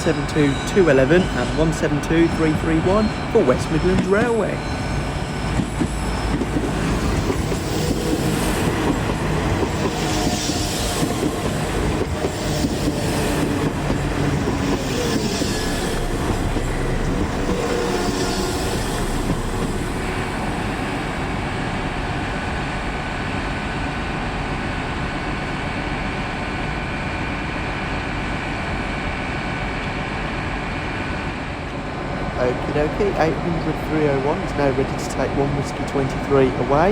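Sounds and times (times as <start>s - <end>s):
train brakes squealing: 0.0s - 21.6s
train hum with constant whine: 0.0s - 36.9s
train wheels clattering over rails: 1.2s - 19.9s.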